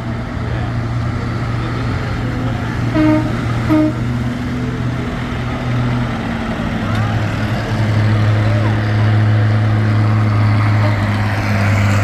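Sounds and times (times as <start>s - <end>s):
tractor engines running: 0.0s - 12.0s
short horn toots: 3.0s - 4.1s.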